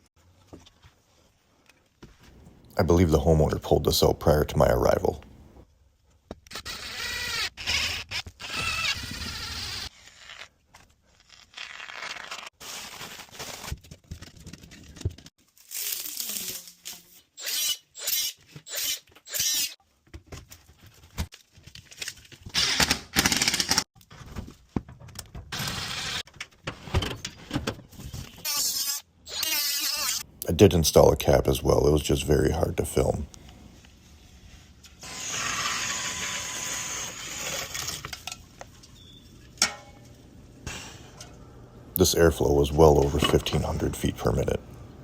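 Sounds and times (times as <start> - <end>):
handling and tool noises: 43.0 - 44.5.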